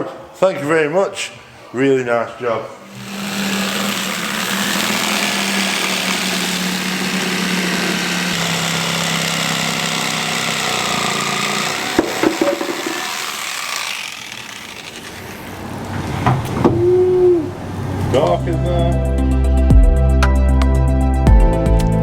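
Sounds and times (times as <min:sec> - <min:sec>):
machine motor hissing and humming: 0:02.9 - 0:16.0
sharp knocks: 0:11.8 - 0:13.3.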